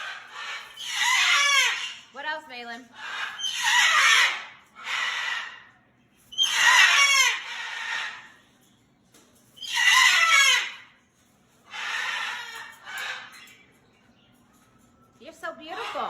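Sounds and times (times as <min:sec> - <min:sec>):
cockatoo screaming: 0:00.0 - 0:02.0, 0:03.0 - 0:05.6, 0:06.4 - 0:08.3, 0:09.6 - 0:10.9
cockatoo calls: 0:00.0 - 0:02.1, 0:02.9 - 0:08.4, 0:09.6 - 0:11.0, 0:11.6 - 0:13.6.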